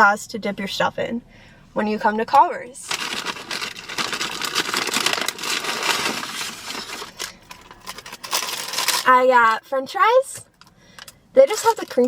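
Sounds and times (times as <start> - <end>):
paper packaging rustling: 2.8 - 9.2.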